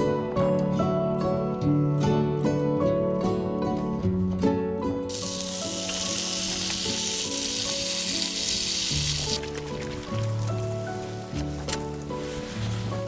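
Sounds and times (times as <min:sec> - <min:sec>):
soft plucked-string music: 0:00.0 - 0:13.0
meat sizzling in a pan: 0:05.1 - 0:09.5.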